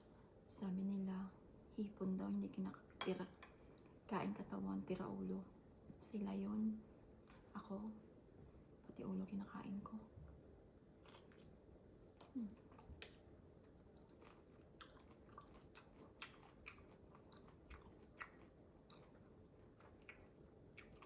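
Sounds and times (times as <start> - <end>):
chewing prawn with crunches: 11.0 - 11.6, 12.2 - 21.0.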